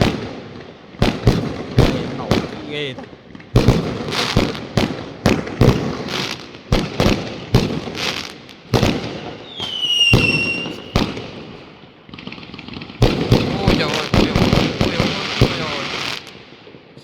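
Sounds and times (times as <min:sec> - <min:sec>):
fireworks banging: 0:00.0 - 0:17.0.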